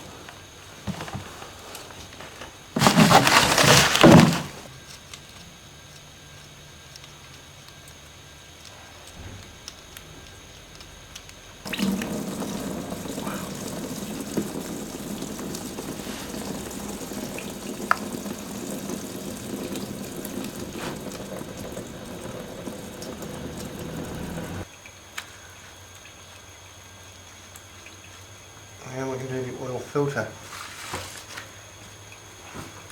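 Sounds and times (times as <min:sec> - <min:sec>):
oil pouring into container: 0:02.8 - 0:04.6, 0:11.7 - 0:24.7.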